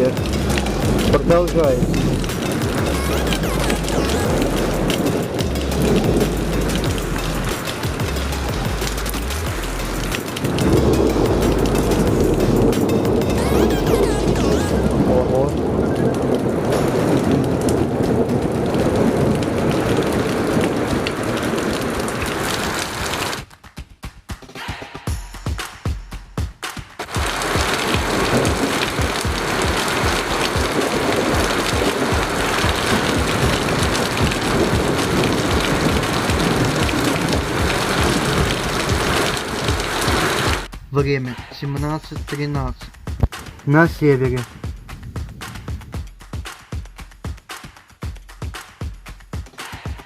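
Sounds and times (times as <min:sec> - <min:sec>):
heavy rain hissing: 0:00.0 - 0:23.4, 0:27.0 - 0:41.7
raindrops tapping close by: 0:00.0 - 0:23.6, 0:27.0 - 0:41.1, 0:41.7 - 0:50.0
dull low thuds: 0:27.2 - 0:41.0, 0:41.8 - 0:47.4.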